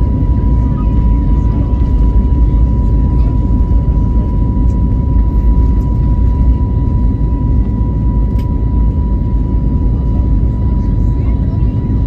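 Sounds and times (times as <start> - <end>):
aircraft cabin low rumble: 0.0 - 12.0
thin steady engine whine: 0.0 - 12.0.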